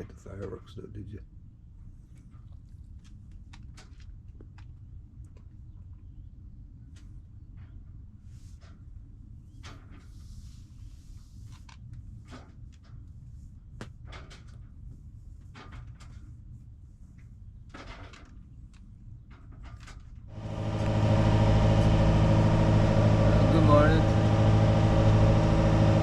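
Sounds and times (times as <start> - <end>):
boat engine humming: 20.3 - 26.0
low rumble: 20.3 - 26.0.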